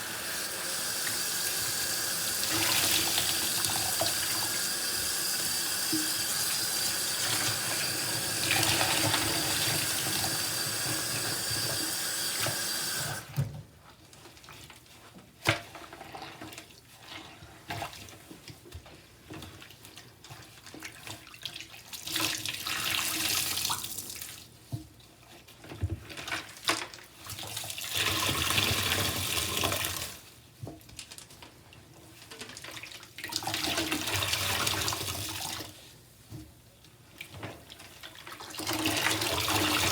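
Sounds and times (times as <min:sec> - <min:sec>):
water gushing from squeezed sponges: 0:00.0 - 0:13.4, 0:37.2 - 0:39.9
tap water running: 0:00.0 - 0:13.5, 0:27.5 - 0:30.2, 0:33.2 - 0:35.8, 0:38.2 - 0:39.9.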